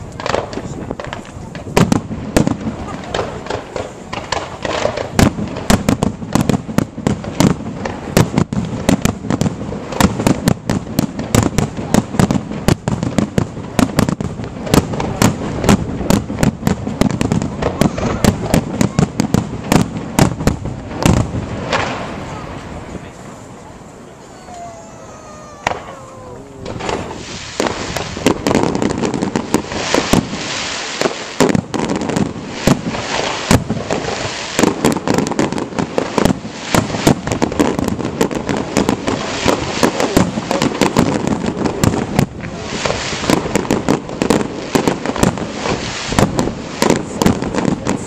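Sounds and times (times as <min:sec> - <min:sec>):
firework bangs and crackling: 0:00.0 - 0:48.0
falling firework whistle: 0:24.0 - 0:28.3.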